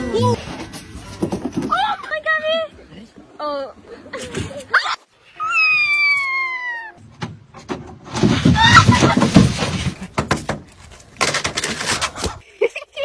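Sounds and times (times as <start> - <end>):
wavering cry: 4.8 - 7.0.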